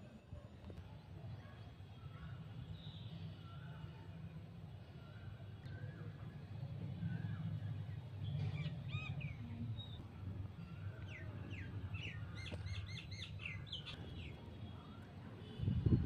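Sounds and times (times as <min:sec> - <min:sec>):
birds chirping and calling: 0:08.3 - 0:10.0, 0:10.7 - 0:14.3.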